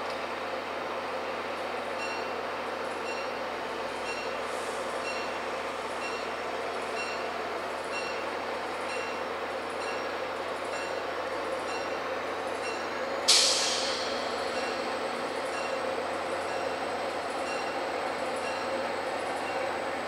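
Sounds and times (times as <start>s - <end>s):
diesel train engine running: 0.0s - 20.0s
train bell ringing: 2.0s - 3.4s, 4.0s - 4.4s, 5.0s - 13.0s, 13.9s - 19.8s
loud air hiss: 13.3s - 14.5s.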